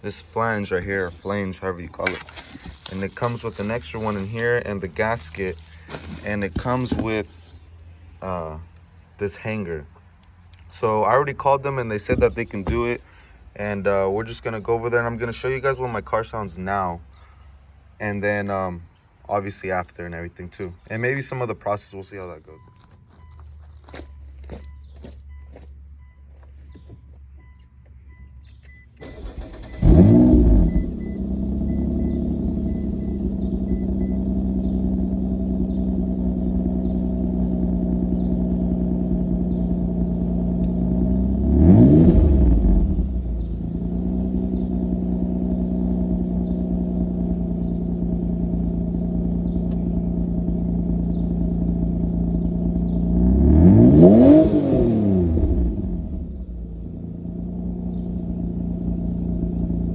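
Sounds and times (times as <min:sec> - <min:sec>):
car engine cranking and starting: 0:00.0 - 0:08.2, 0:11.9 - 0:13.8, 0:23.1 - 0:59.9
car engine idling and revving: 0:00.0 - 0:10.8, 0:11.6 - 0:16.1, 0:22.6 - 0:59.9.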